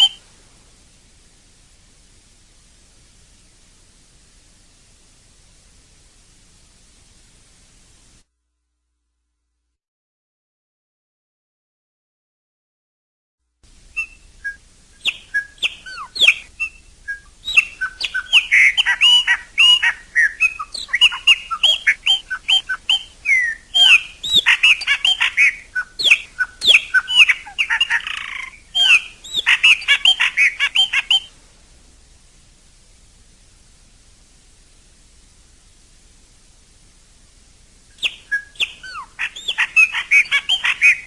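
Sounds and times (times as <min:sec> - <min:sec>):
blackbird singing: 0:00.0 - 0:00.2, 0:13.9 - 0:31.3, 0:37.9 - 0:41.0.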